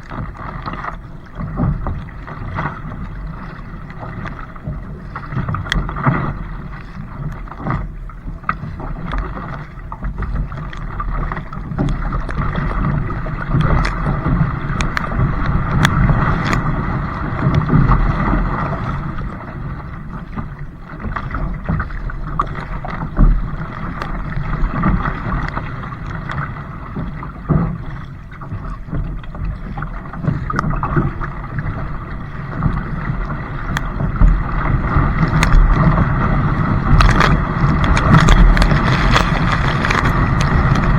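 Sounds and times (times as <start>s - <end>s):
water sloshing: 0.0s - 40.9s
wind buffeting microphone: 31.6s - 40.9s.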